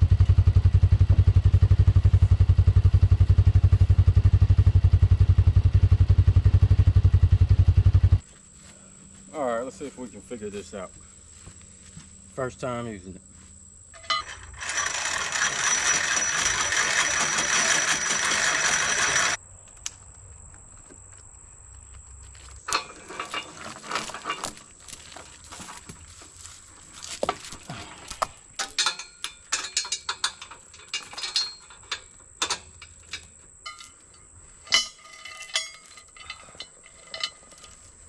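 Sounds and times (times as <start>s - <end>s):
hand winch ratcheting rattle: 14.0s - 19.4s, 22.7s - 38.0s
clanks and knocks: 22.7s - 37.8s.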